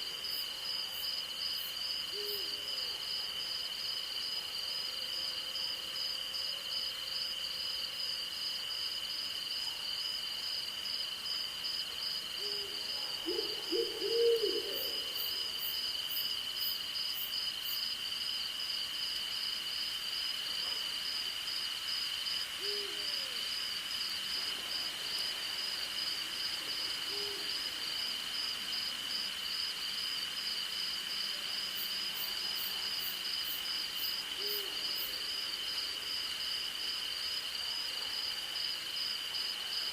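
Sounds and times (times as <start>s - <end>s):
owl hooting: 12.4s - 15.2s.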